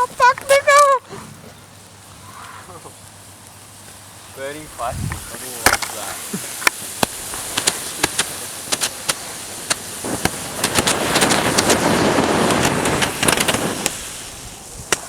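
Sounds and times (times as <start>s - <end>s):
burning plastic crackling and popping: 0.0s - 1.1s, 2.8s - 15.0s
hissing flare: 0.0s - 15.0s.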